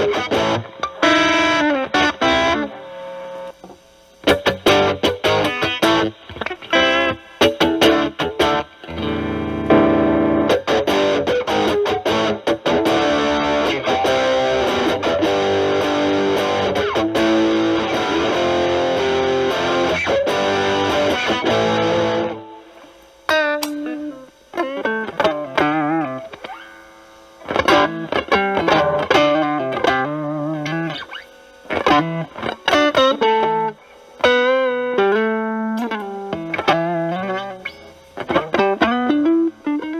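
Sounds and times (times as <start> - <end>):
heavily distorted electric guitar: 0.0 - 39.9.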